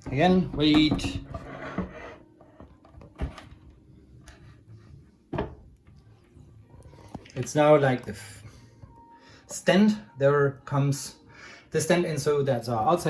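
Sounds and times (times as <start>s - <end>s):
wooden table knocks and clunks: 0.0s - 2.0s, 2.6s - 3.6s, 5.3s - 5.7s.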